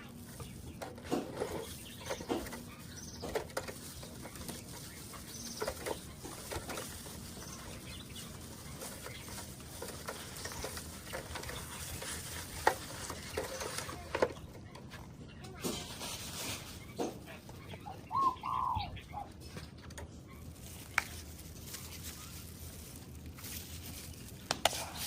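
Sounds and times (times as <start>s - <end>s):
birds chirping faintly: 0.0s - 25.0s.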